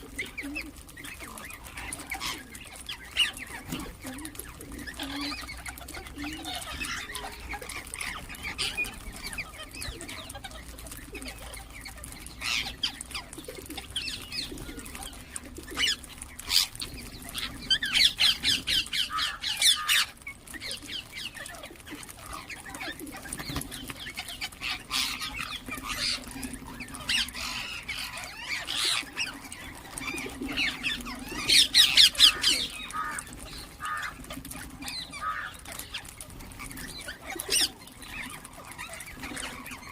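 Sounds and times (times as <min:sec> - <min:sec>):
parrots squawking: 0:00.0 - 0:39.9
parrots screeching rapidly: 0:15.8 - 0:21.5, 0:22.2 - 0:36.1.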